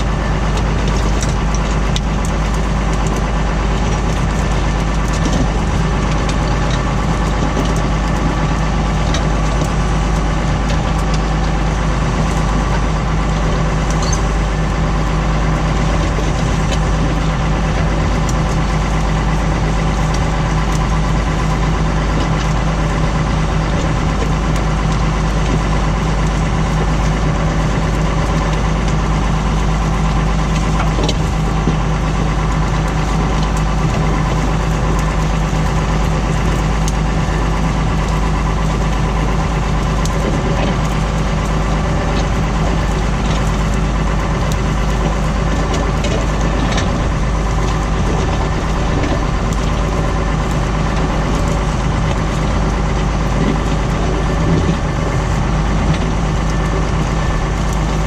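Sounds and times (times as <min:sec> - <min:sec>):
tractor engine rumbling: 0:00.0 - 0:58.0.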